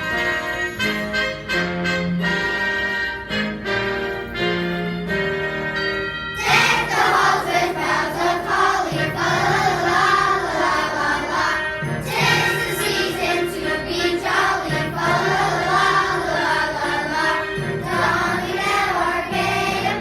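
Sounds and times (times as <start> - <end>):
held instrumental notes: 0.0 - 20.0
choir singing: 6.4 - 20.0.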